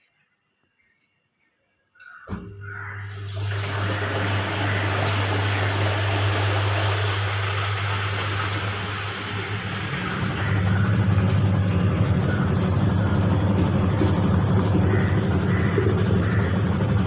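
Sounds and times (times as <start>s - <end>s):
washing machine motor hum: 2.1s - 17.0s
rushing water noise: 2.8s - 16.7s.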